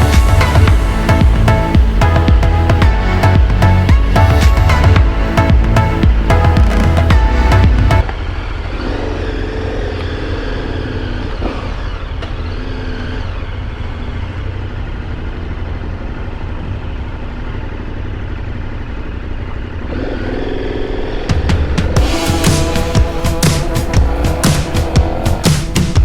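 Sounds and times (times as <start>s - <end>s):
music: 0.0s - 8.0s, 21.4s - 26.0s
motorcycle riding: 0.0s - 26.0s.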